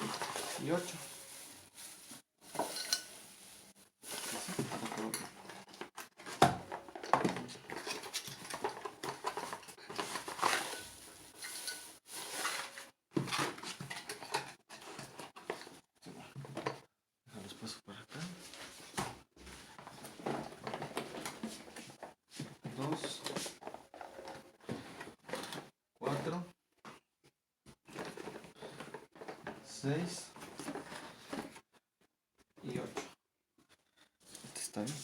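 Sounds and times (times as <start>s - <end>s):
drinking tumblers clinking: 2.5s - 3.2s.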